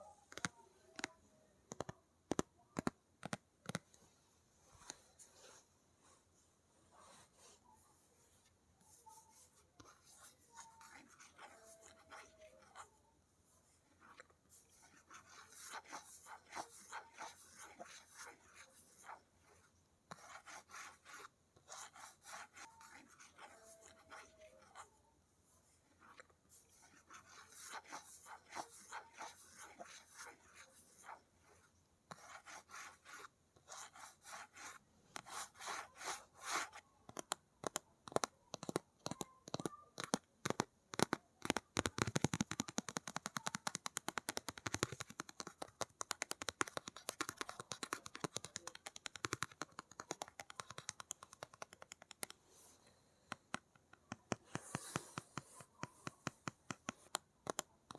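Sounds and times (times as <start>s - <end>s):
fingernail scratching and tapping: 0.3s - 3.8s, 32.1s - 52.4s, 53.3s - 57.9s.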